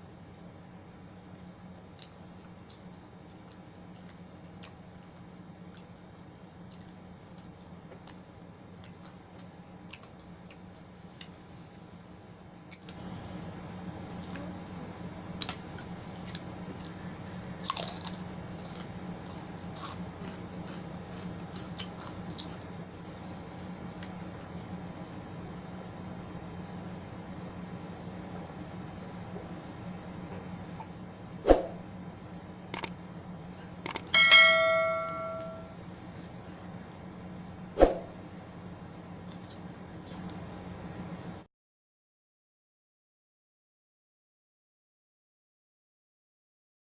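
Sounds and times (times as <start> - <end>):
steady low hum: 0.0 - 41.5
crunching and chewing crisp food: 1.3 - 11.9, 12.6 - 24.8, 38.3 - 40.6
dish ringing when struck: 34.1 - 35.7.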